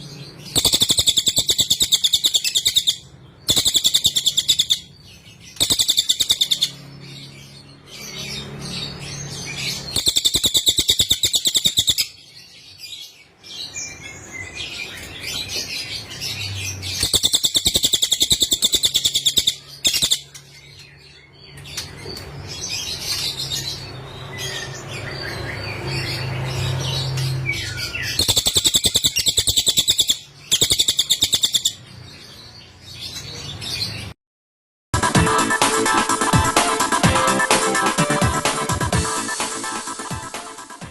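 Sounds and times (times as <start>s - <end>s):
soft bird twittering: 0.0s - 34.1s
bird high-pitched trilling: 0.5s - 7.1s, 8.0s - 12.2s, 17.0s - 20.4s, 27.1s - 31.8s.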